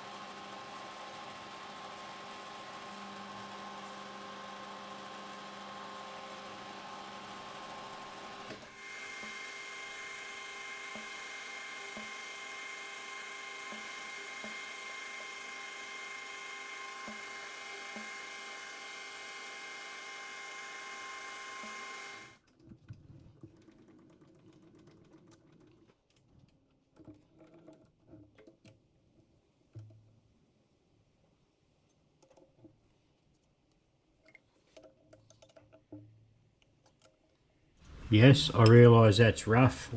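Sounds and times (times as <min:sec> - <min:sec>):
metal lathe cutting: 0:00.0 - 0:22.4.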